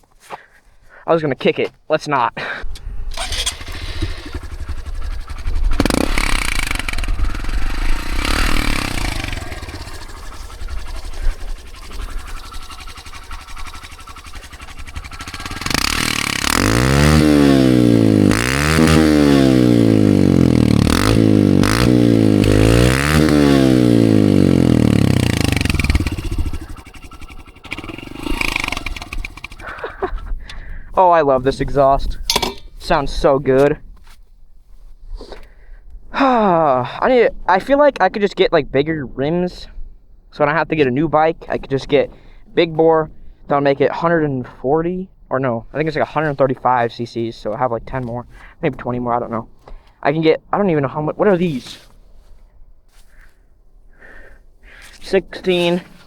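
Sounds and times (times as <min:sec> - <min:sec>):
wind noise: 0:02.6 - 0:16.1, 0:25.5 - 0:36.2
rattles: 0:02.6 - 0:17.6, 0:24.9 - 0:30.6, 0:32.1 - 0:33.2
dirt bike engine revving: 0:02.7 - 0:30.2, 0:54.0 - 0:56.0.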